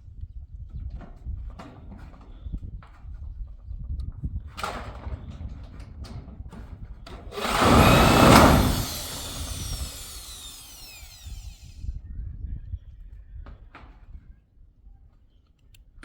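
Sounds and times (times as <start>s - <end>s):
power tool whining: 7.3s - 11.9s.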